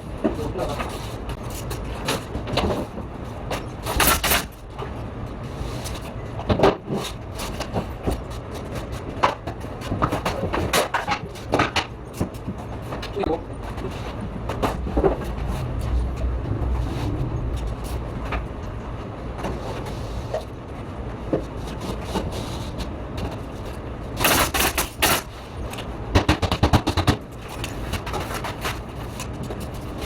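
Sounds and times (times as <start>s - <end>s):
low site rumble: 12.8s - 21.3s.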